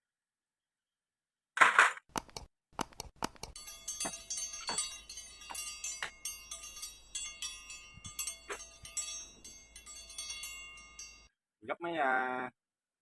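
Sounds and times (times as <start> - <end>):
chime-like metallic tinkling: 3.5 - 11.4.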